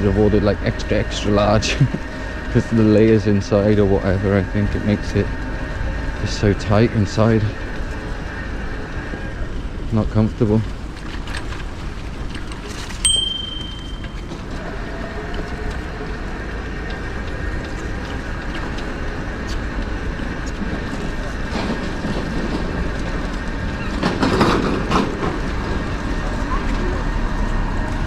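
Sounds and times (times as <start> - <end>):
wind and bicycle tyre rumble: 0.0 - 28.0
bicycle bell ding: 13.0 - 14.4.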